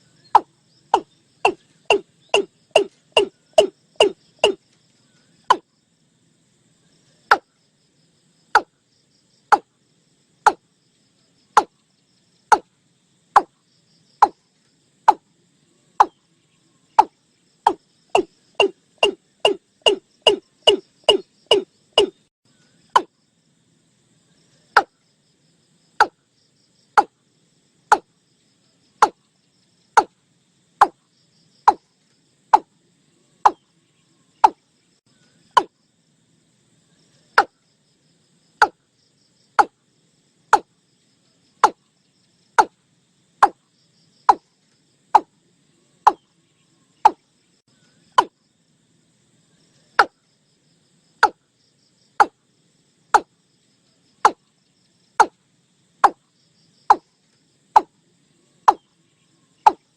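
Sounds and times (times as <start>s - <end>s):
watercock calling: 0.4s - 4.6s, 17.7s - 22.2s.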